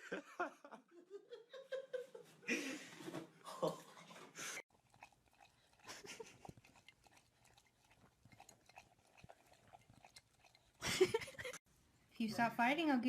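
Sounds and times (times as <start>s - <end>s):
animal chewing and crunching: 4.0s - 11.6s.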